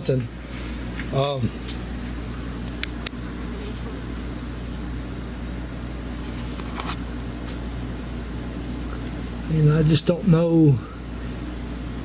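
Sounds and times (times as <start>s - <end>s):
low mechanical hum: 0.0s - 12.0s
brief rustle or scrape: 6.2s - 7.0s.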